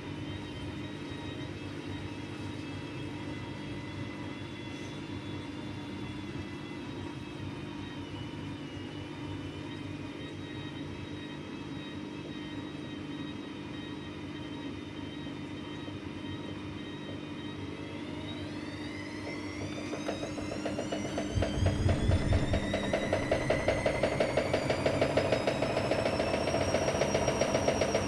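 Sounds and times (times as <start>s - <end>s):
washer motor hum: 0.0s - 28.0s
high whine: 14.1s - 28.0s.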